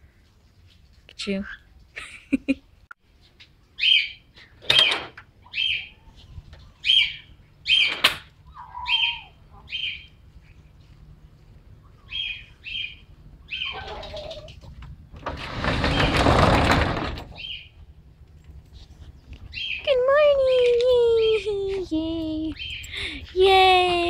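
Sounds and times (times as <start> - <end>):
bird chirping: 3.6 - 4.6, 5.4 - 11.0, 11.7 - 14.6, 17.3 - 17.8, 19.1 - 20.0, 22.5 - 23.3
metal roll-up door rattling: 13.7 - 17.7.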